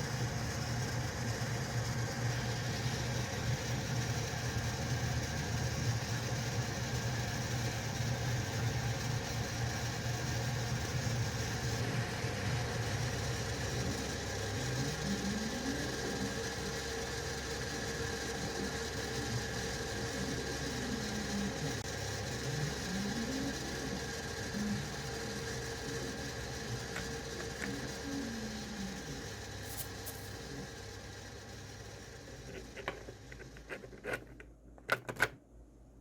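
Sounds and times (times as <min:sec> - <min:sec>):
printer fans and motors whirring: 0:00.0 - 0:36.0
stepper motors whining: 0:10.7 - 0:34.1.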